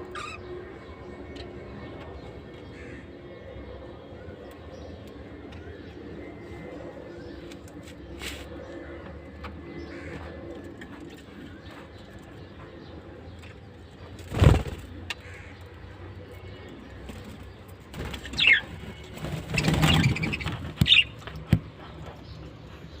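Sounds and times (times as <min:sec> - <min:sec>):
caged birds chirping: 0:00.0 - 0:23.0.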